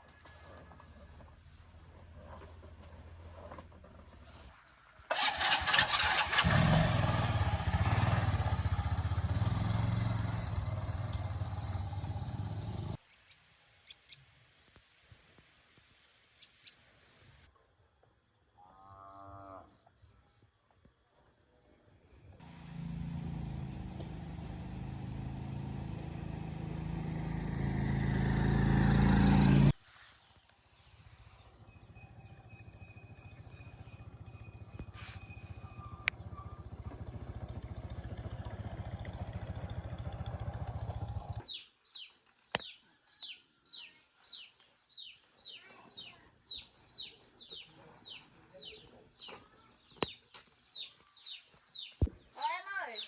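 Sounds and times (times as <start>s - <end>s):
engine hum: 5.1s - 13.0s, 22.4s - 29.8s, 31.3s - 41.4s
motorcycle engine running: 5.1s - 13.0s, 22.4s - 29.7s, 31.6s - 41.4s
chickens chirping: 41.4s - 52.4s.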